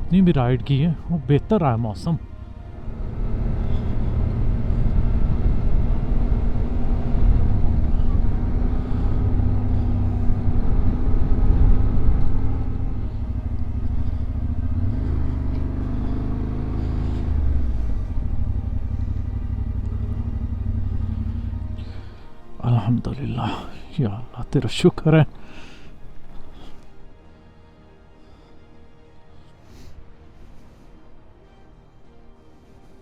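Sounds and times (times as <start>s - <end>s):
road and wind noise: 0.0s - 31.4s
motorcycle engine running: 2.0s - 22.5s.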